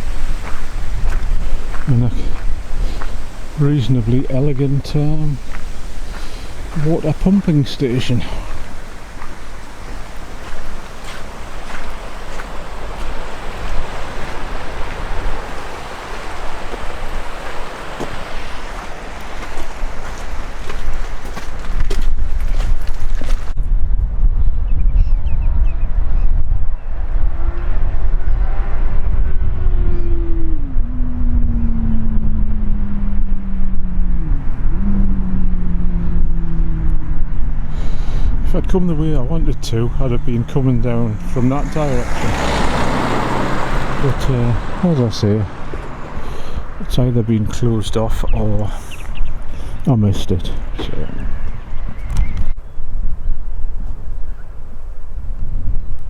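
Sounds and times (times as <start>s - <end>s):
vehicle engine droning: 0.0s - 21.7s, 26.8s - 48.8s
sea surf rushing: 0.0s - 21.9s, 37.7s - 51.6s
wind buffeting microphone: 0.0s - 56.0s.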